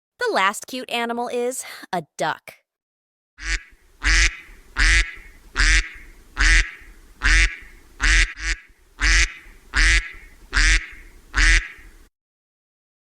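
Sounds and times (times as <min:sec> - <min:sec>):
duck quacking: 0:03.4 - 0:12.0.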